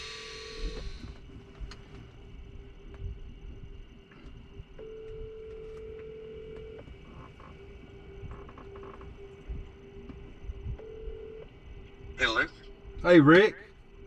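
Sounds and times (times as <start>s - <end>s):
telephone ringback tone: 0.0s - 1.0s, 4.8s - 6.8s, 10.8s - 11.5s.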